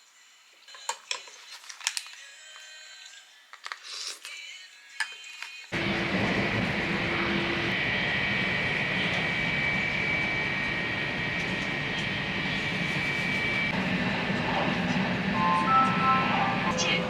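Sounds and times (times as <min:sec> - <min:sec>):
engine and airflow rush: 0:05.8 - 0:17.0
faint high steady tone: 0:15.3 - 0:17.0.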